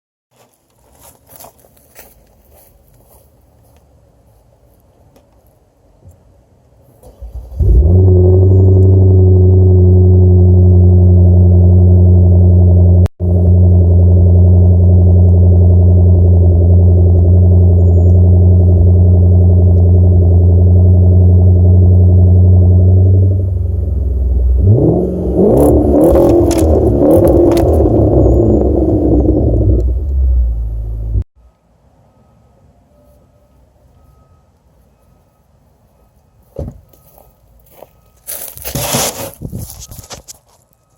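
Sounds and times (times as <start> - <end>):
car engine starting and idling: 6.9 - 31.3
car engine revving: 7.0 - 31.3.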